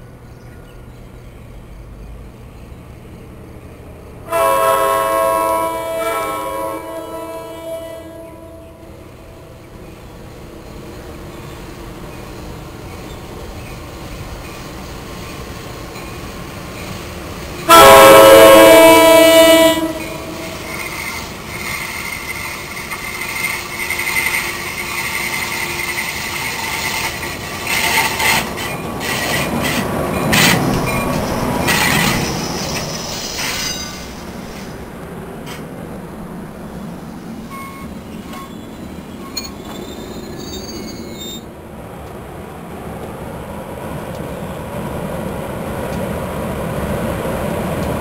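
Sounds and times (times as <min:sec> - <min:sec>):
electric locomotive rumble: 0:00.0 - 0:48.0
train wheel rumble: 0:00.0 - 0:48.0
train horn blast: 0:04.3 - 0:08.9, 0:17.7 - 0:20.8
high wheel squeal: 0:20.1 - 0:34.7, 0:37.5 - 0:41.5.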